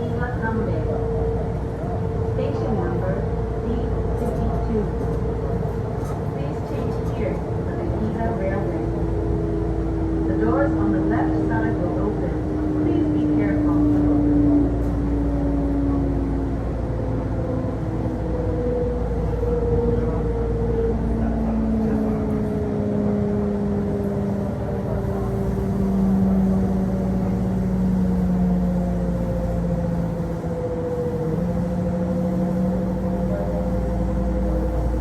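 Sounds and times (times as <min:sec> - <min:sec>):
electric train running: 0:23.4 - 0:35.0.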